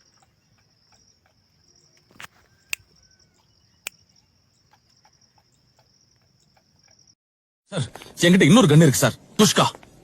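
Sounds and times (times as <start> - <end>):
sharp clicks: 0.0 - 7.0
insects trilling: 0.0 - 7.2.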